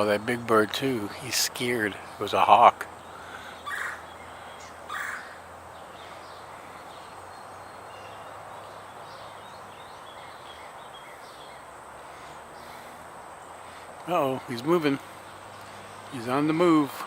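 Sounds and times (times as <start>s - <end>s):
steady background hiss: 0.0s - 17.0s
loud squawking bird call: 2.3s - 6.8s.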